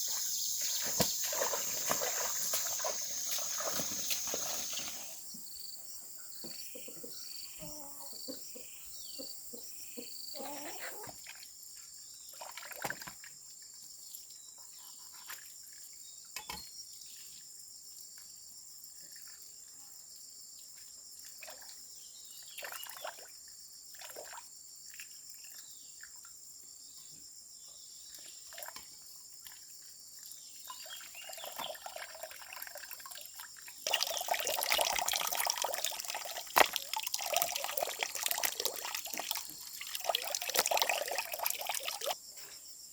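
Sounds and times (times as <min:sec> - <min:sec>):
running splashing water: 0:00.0 - 0:05.3, 0:30.7 - 0:42.2.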